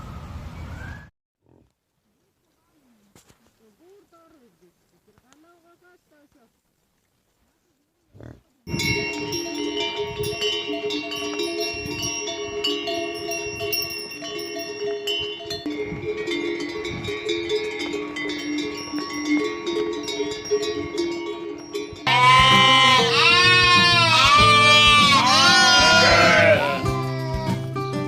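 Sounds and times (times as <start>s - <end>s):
bells ringing: 8.7s - 26.6s
loud wavering bleat: 22.0s - 27.6s.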